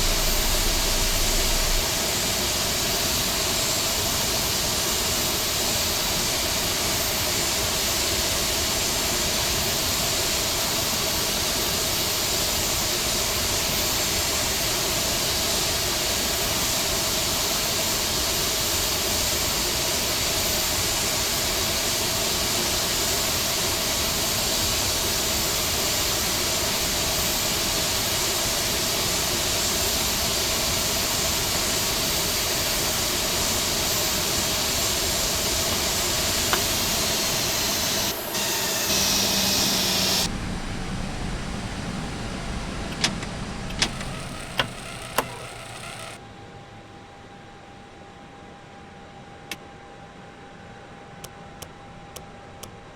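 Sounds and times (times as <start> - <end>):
rush of air: 0.0 - 2.0
faint steady hums: 0.0 - 2.2, 31.3 - 52.9.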